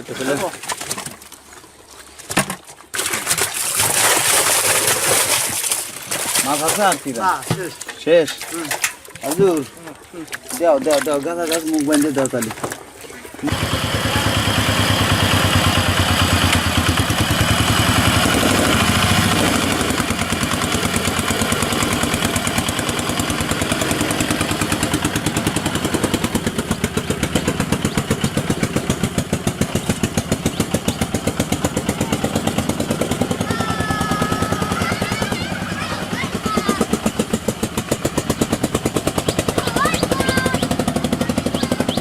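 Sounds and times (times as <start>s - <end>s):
small engine chugging: 13.4s - 42.0s.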